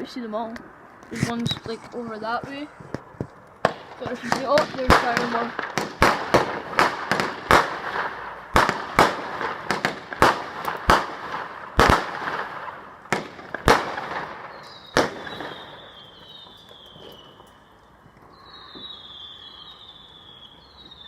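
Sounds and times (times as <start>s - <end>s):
fireworks bangs and crackling: 1.1s - 17.6s, 18.2s - 21.0s
faint high whistle: 14.5s - 21.0s.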